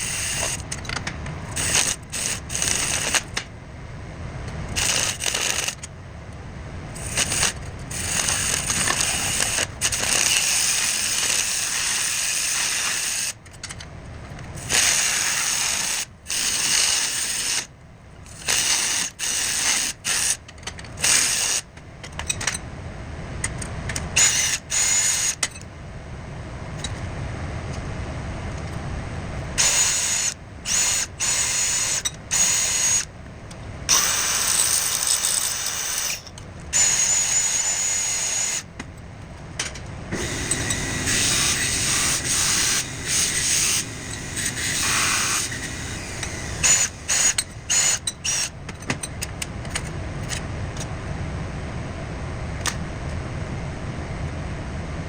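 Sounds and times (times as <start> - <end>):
rasping metalworking tool: 0.0 - 0.8, 1.5 - 3.4, 4.8 - 5.8, 7.0 - 13.4, 14.6 - 17.7, 18.3 - 20.4, 21.0 - 21.7, 24.2 - 25.5, 29.6 - 33.1, 33.9 - 38.7, 40.1 - 50.4.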